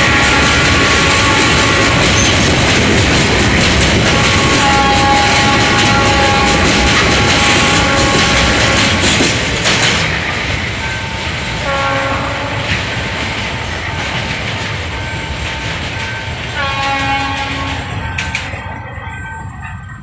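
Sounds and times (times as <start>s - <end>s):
diesel locomotive horn: 0.0s - 3.0s, 3.6s - 9.2s, 11.6s - 12.9s, 16.5s - 18.6s
freight train rumble and wheel clatter: 0.0s - 20.0s.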